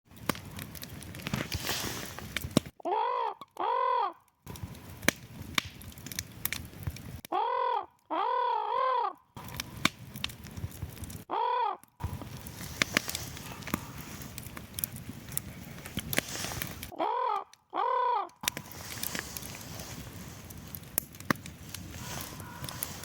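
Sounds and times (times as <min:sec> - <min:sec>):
wood fire crackling: 0:00.1 - 0:02.8, 0:04.2 - 0:08.1, 0:09.2 - 0:17.6, 0:18.3 - 0:23.0
raven croaking: 0:07.3 - 0:09.8, 0:11.3 - 0:12.2, 0:13.4 - 0:14.2, 0:16.9 - 0:18.6, 0:22.0 - 0:23.0.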